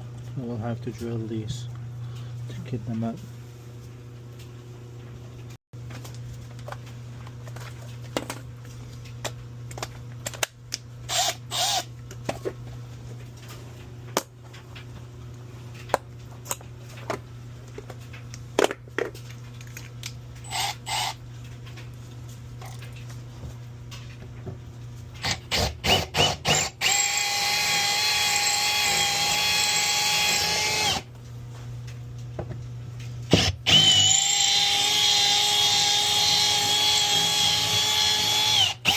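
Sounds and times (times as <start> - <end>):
power drill drilling: 11.1 - 11.9, 20.5 - 21.2, 25.2 - 31.0, 33.3 - 38.9.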